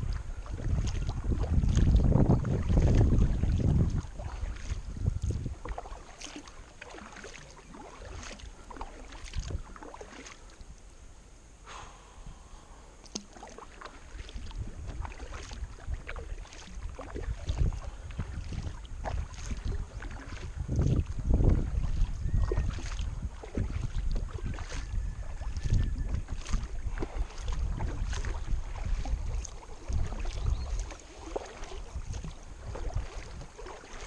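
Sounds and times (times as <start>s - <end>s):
wind buffeting microphone: 0.0s - 6.0s, 9.2s - 9.8s, 14.1s - 34.0s
kayak paddle splashing in water: 0.0s - 10.6s, 13.0s - 34.0s
water dripping: 13.0s - 17.7s.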